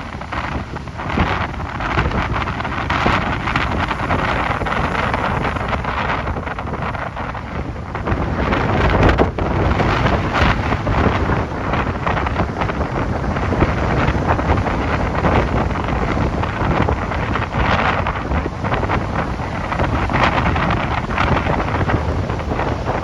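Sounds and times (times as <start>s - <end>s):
strong wind buffeting microphone: 0.0s - 23.0s.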